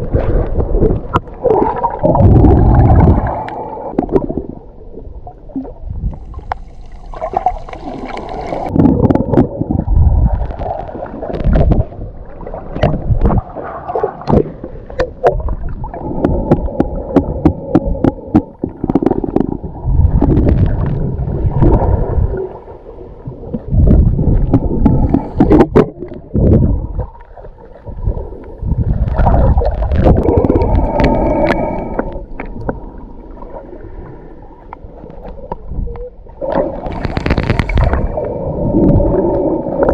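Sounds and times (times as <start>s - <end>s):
muffled water gurgling and churning: 0.0s - 39.9s.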